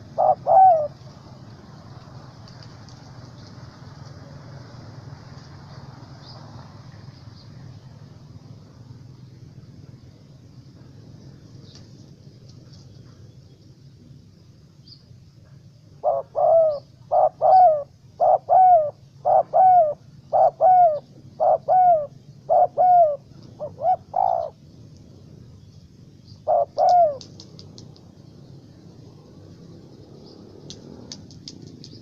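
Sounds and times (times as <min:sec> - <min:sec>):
dove cooing: 0:00.0 - 0:03.8, 0:15.9 - 0:24.6, 0:26.4 - 0:28.0.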